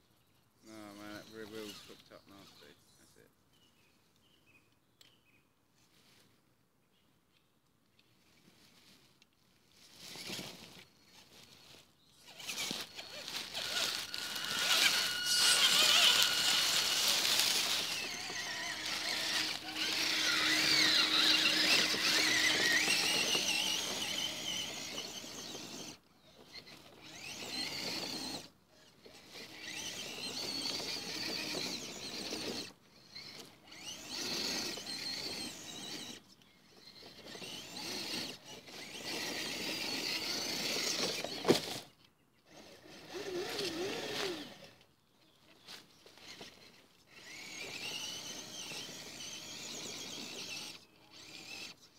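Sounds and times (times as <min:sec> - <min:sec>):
electric motors whining: 0:10.1 - 0:44.8, 0:45.5 - 0:51.9.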